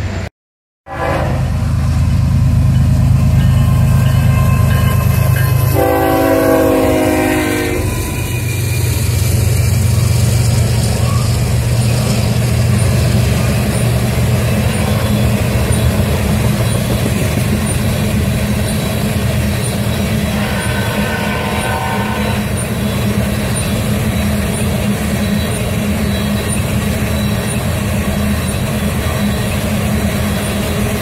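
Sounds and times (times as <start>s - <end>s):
diesel locomotive engine rumbling: 0.0s - 0.3s, 0.9s - 31.0s
train air horn blast: 0.8s - 1.7s, 5.7s - 8.2s, 20.3s - 22.5s
train cars rumbling and clattering: 1.0s - 31.0s.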